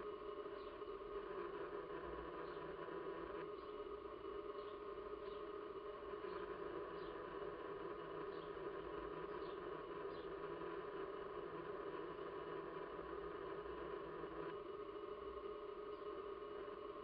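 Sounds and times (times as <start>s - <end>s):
steady low hum: 0.0s - 17.0s
small birds chirping: 0.5s - 0.9s, 2.4s - 2.8s, 4.5s - 5.6s, 6.2s - 7.6s, 8.2s - 10.5s.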